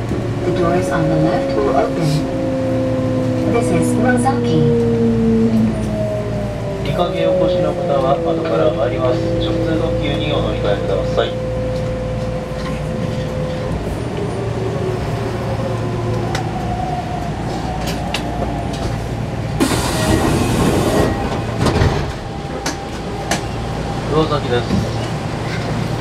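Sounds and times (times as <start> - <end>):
train running noise: 0.0 - 26.0
passing train rushing hiss: 18.7 - 22.1.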